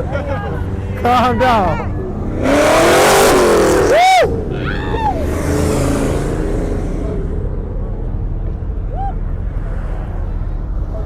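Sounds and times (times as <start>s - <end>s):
car engine revving: 0.5s - 10.8s
onlookers shouting: 1.2s - 5.4s.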